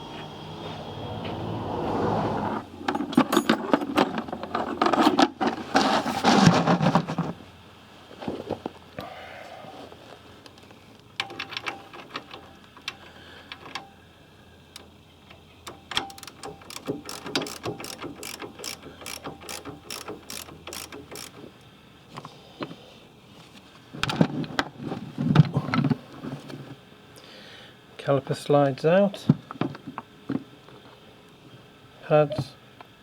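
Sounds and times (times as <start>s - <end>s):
ratchet spanner clicking: 14.7s - 21.6s.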